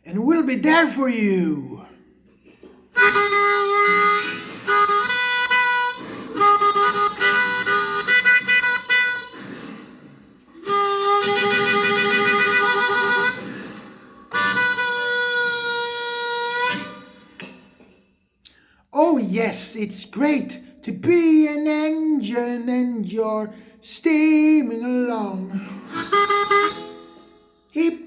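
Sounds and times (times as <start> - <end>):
harmonica playing chords: 3.0 - 17.6, 25.5 - 28.0.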